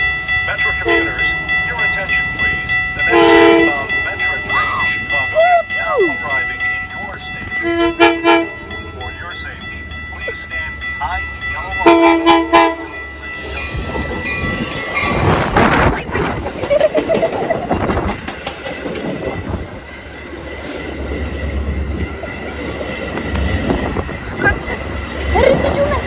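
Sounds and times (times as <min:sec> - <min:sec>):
low train rumble: 0:00.0 - 0:26.0
train wheels clicking over rail joints: 0:13.8 - 0:26.0.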